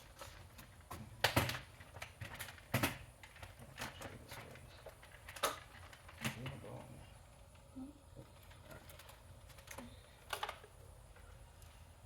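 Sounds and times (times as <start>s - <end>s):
knocks and bumps of handled objects: 0.0s - 6.8s.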